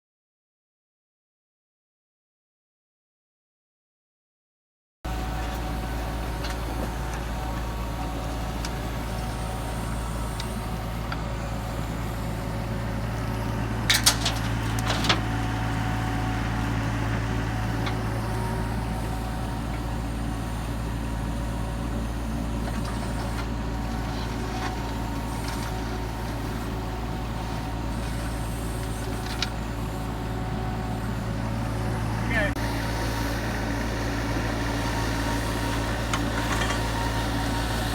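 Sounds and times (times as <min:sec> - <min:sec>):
excavator engine running: 0:05.1 - 0:37.9.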